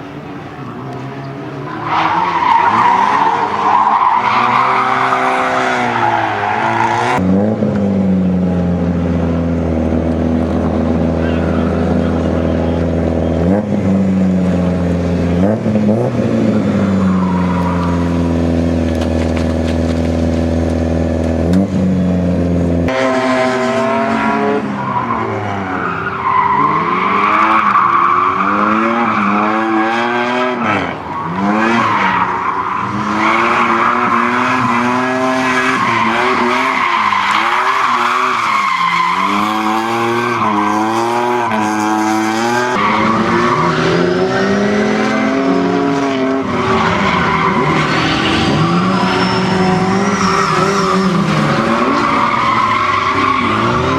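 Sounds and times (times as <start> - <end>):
car engine revving: 0.0 - 53.9
tyres squealing: 46.4 - 53.9.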